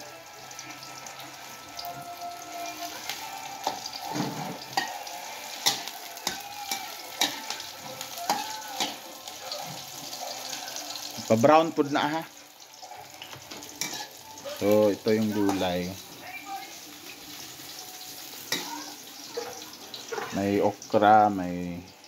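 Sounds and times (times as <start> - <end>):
garlic and onion sizzling in oil: 0.0 - 22.0
metal spoon clinking against pan: 4.7 - 10.5, 13.2 - 14.2.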